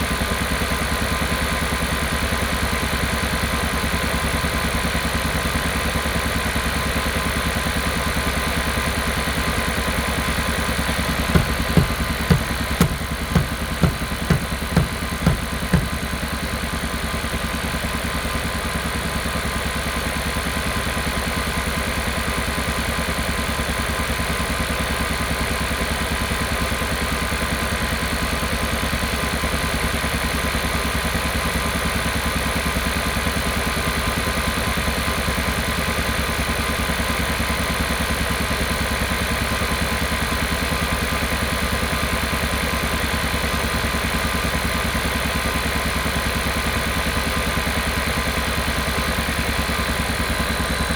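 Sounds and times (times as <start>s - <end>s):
car engine pulsing: 11.2s - 16.4s.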